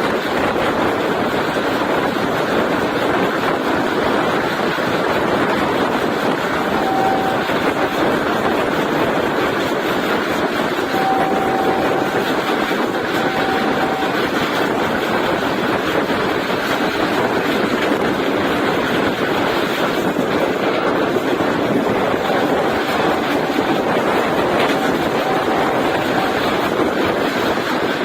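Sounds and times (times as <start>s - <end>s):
train running at speed: 0.0s - 28.0s.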